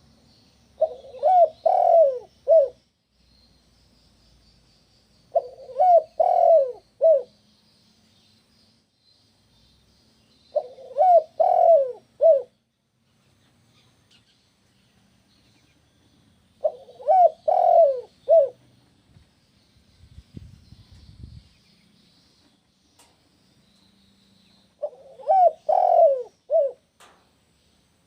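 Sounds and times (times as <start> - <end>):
faint high twittering: 0.0 - 28.0
dove cooing: 0.8 - 2.8, 5.3 - 7.4, 10.5 - 12.6, 16.6 - 18.6, 24.8 - 27.1.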